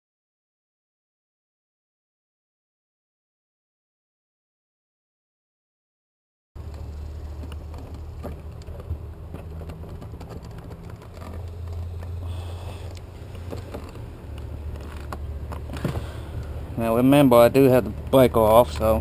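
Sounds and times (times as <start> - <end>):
steady low rumble: 6.6 - 19.0
tools clicking and tapping on wires: 7.4 - 12.2.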